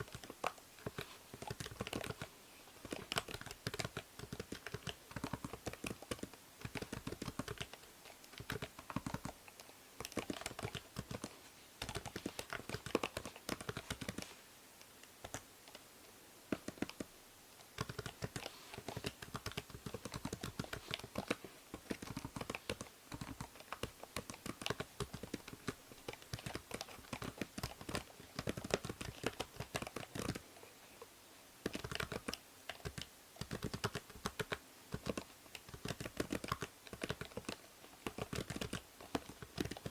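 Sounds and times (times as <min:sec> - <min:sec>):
keyboard typing: 0:00.0 - 0:14.3, 0:15.2 - 0:15.8, 0:16.5 - 0:30.4, 0:31.6 - 0:39.9
faint steady hiss: 0:00.0 - 0:39.9.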